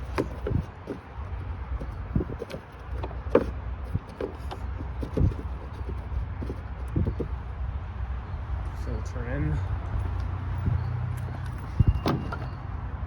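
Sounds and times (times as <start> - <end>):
plastic knocks and clicks: 0.0 - 7.4.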